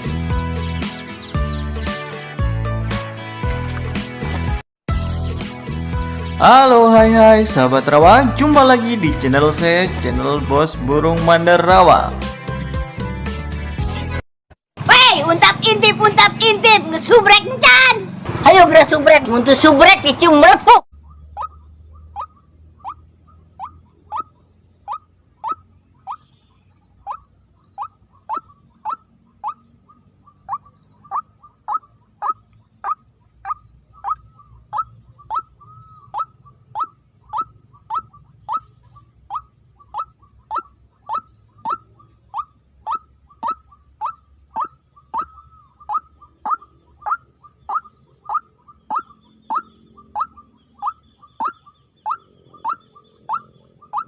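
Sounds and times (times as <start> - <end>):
waterhen calling: 21.0 - 54.0.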